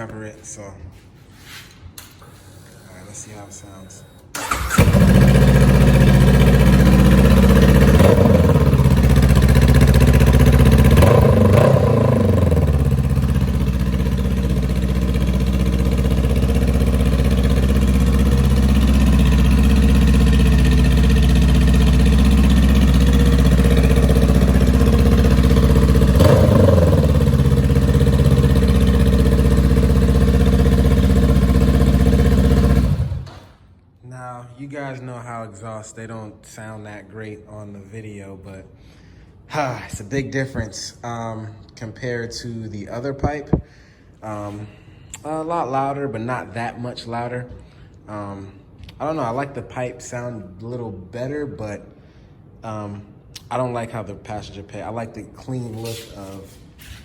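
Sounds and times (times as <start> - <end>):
engine throttle blips: 4.4 - 33.3
motorcycle engine idling loud: 4.8 - 33.2.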